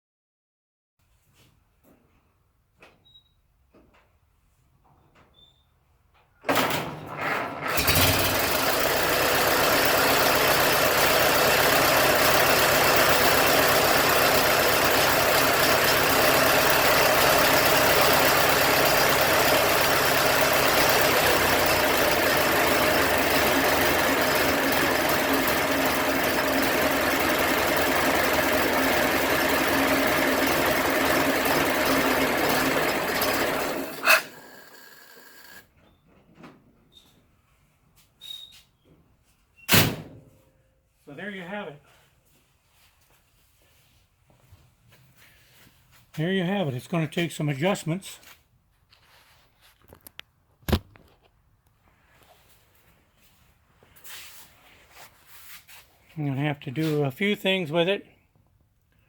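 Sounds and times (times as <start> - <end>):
car engine starting and running: 7.4 - 35.6.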